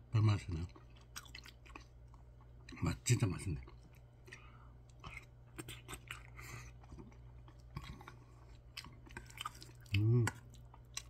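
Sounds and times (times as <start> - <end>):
person chewing food: 0.5 - 2.8, 3.6 - 11.0.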